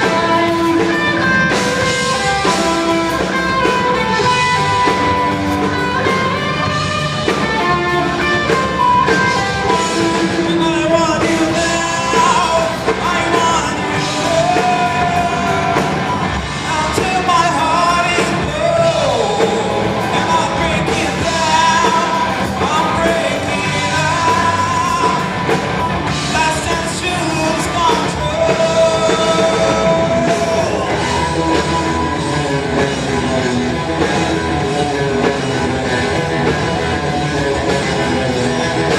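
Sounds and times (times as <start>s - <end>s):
drum kit: 0.0s - 38.9s
electric guitars: 0.0s - 38.9s
rock band playing: 0.0s - 38.9s
man singing: 6.0s - 38.9s.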